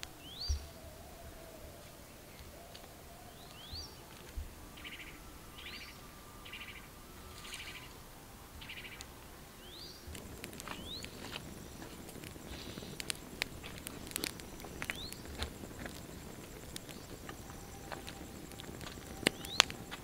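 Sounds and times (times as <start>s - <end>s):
faint steady background: 0.0s - 20.0s
bird rising whistle: 2.4s - 10.1s, 10.7s - 20.0s
buzzy bird chirps: 4.8s - 8.0s, 8.6s - 9.0s
sharp clicks and rustles: 10.1s - 20.0s.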